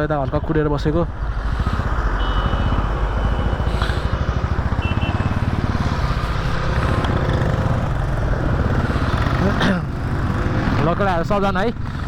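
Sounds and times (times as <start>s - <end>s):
motorcycle engine idling: 1.2s - 6.0s.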